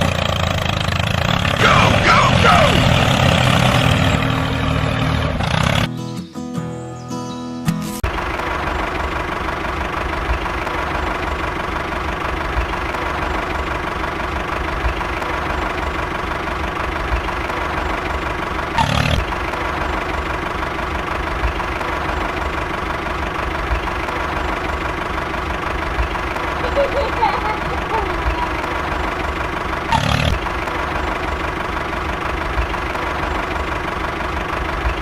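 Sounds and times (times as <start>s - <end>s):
engine idling: 0.0s - 6.1s, 8.0s - 35.0s.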